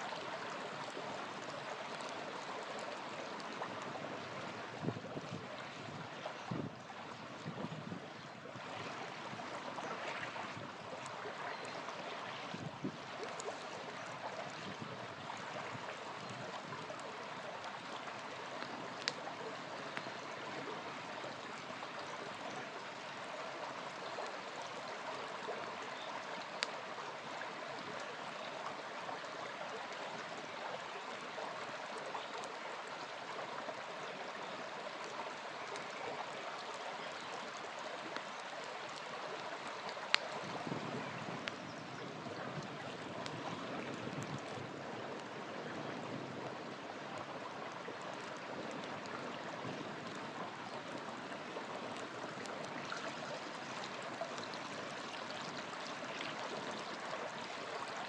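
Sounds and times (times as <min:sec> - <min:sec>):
river flowing: 0:00.0 - 0:58.0
campfire popping: 0:10.9 - 0:20.5.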